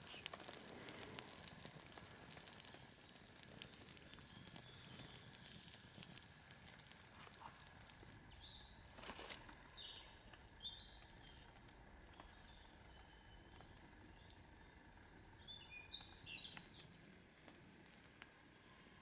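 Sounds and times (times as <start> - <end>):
faint bird calls: 0.0 - 6.1
light rain drips: 0.0 - 19.0.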